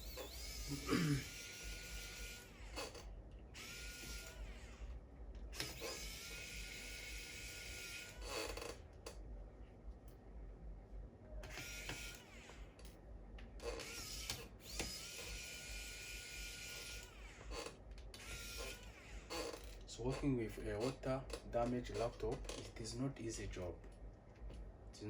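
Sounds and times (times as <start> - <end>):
electric screwdriver whirring: 0.0 - 3.0, 3.6 - 4.8, 5.6 - 8.2, 11.5 - 12.8, 13.8 - 17.6, 18.2 - 19.6.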